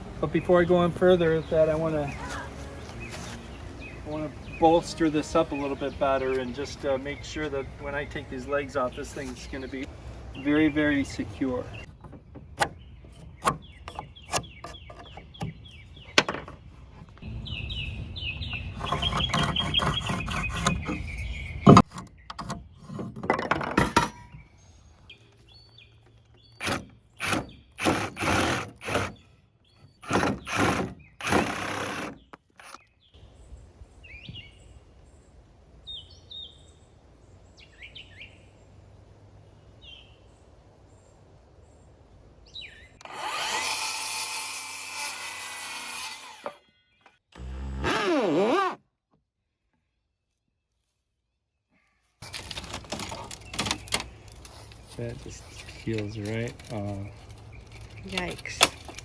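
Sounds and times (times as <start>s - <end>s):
birds chirping: 0.0s - 48.8s, 51.7s - 59.0s
harsh strokes on wood: 18.5s - 22.0s, 26.6s - 32.8s.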